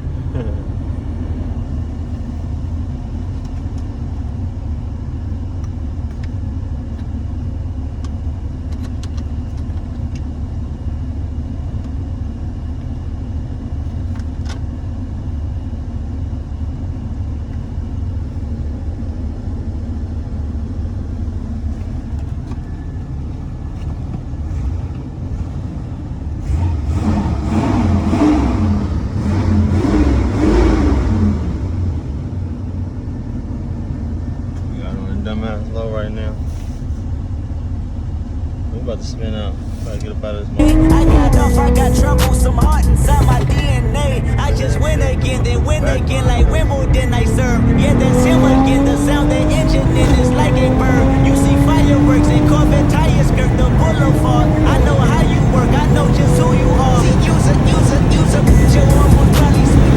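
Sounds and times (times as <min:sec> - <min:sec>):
car engine low rumble: 0:00.0 - 0:59.9
wavering pitched sound: 0:40.6 - 0:56.5.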